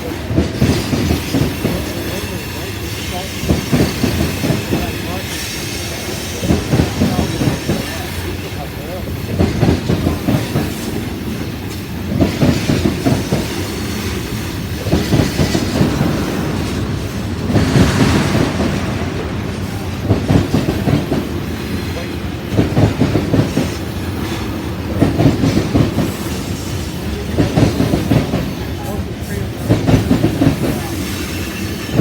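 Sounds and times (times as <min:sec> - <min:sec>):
freight train wheels clacking: 0:00.0 - 0:32.0.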